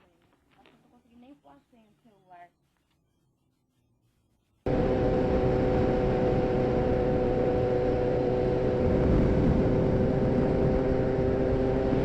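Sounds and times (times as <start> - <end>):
motorcycle engine drone: 4.6 - 12.0
wind rushing over microphone: 4.7 - 12.0.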